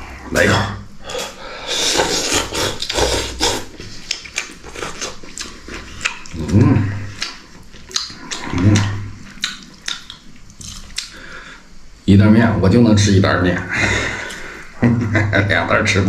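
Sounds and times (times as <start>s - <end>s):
man slurping and chewing noodles: 1.1s - 11.2s.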